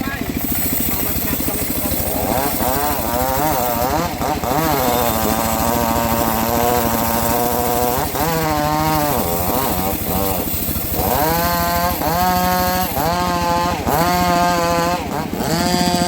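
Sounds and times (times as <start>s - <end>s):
bandsaw mill sawing log: 0.0s - 16.0s.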